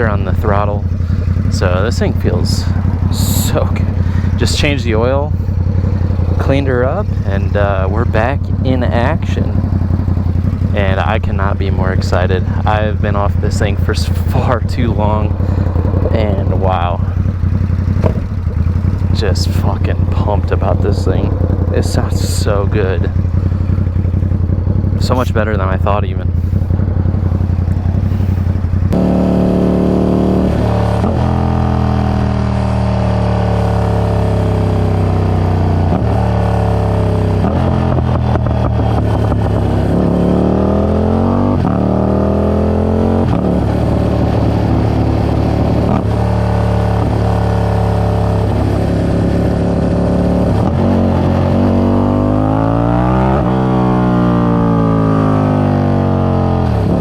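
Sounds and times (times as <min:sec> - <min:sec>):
person speaking: 0:00.0 - 0:05.4, 0:06.2 - 0:09.6, 0:10.6 - 0:17.3, 0:19.0 - 0:23.2, 0:24.9 - 0:26.6
motorcycle engine revving: 0:00.0 - 0:57.0.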